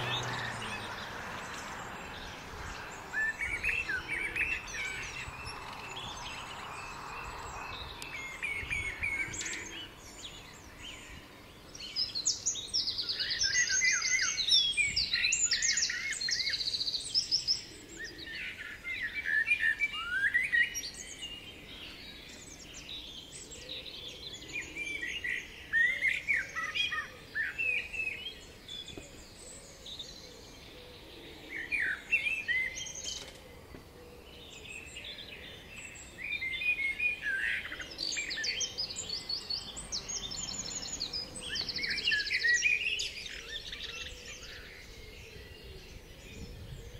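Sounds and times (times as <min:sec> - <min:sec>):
songbirds singing and chirping: 0:00.0 - 0:46.9.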